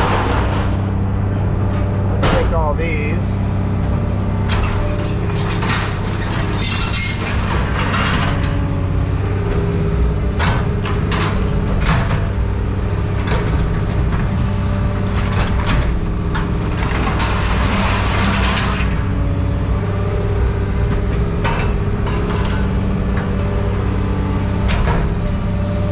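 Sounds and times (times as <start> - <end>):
scrap metal clanking: 0.0 - 8.7
heavy machine engine running: 0.0 - 25.9.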